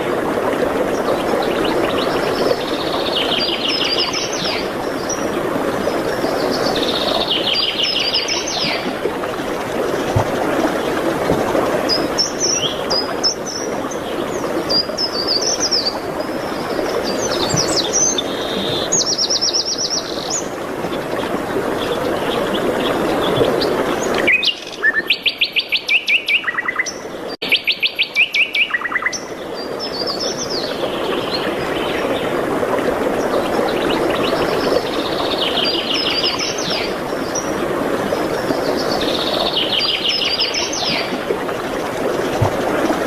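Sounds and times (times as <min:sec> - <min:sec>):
songbirds trilling: 0:00.9 - 0:09.0, 0:11.8 - 0:32.3.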